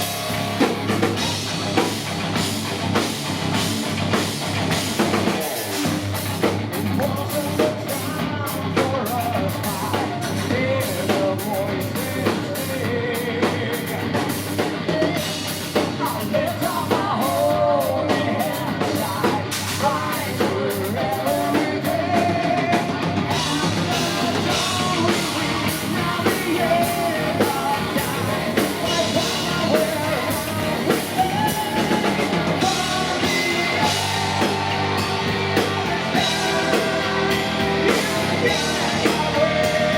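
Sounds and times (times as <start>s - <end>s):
heavy metal band playing live: 0.0s - 39.9s
man singing: 5.3s - 6.0s, 6.8s - 39.9s.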